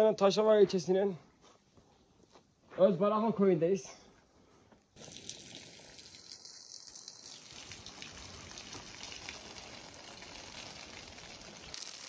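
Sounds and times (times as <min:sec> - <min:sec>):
trickling waterfall splashing: 0:05.0 - 0:12.0.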